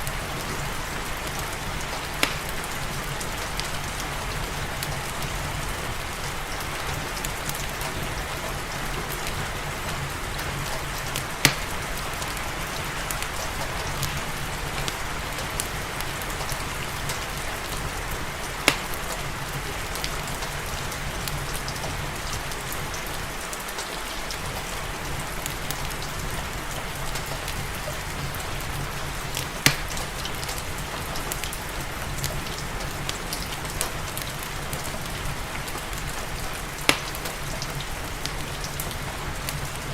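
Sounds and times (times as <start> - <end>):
rain hiss: 0.0 - 39.9
wood fire crackling: 0.0 - 39.9
sharp pops from fire: 2.2 - 2.6, 11.4 - 11.9, 18.6 - 19.2, 29.6 - 30.1, 36.9 - 37.5.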